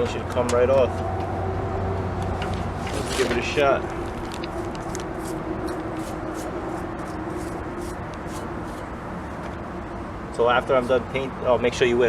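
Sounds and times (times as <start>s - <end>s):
paintbrush scratchy strokes on metal: 5.0s - 8.9s.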